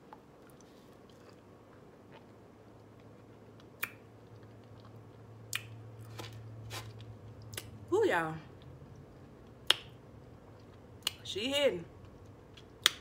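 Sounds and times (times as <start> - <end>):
quiet chewing: 0.0 - 7.7
low steady hum: 0.0 - 13.0.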